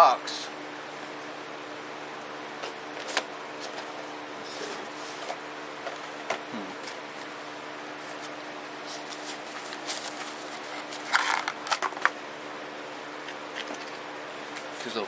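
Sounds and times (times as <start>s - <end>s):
packaging rustling and crinkling: 8.0s - 12.2s.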